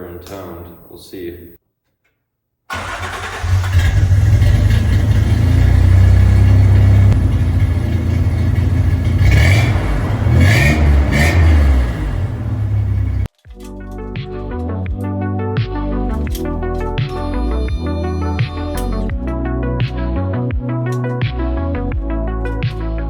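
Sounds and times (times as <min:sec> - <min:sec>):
engine revving blips: 0:02.7 - 0:13.3
pickup engine rumbling: 0:02.7 - 0:13.3.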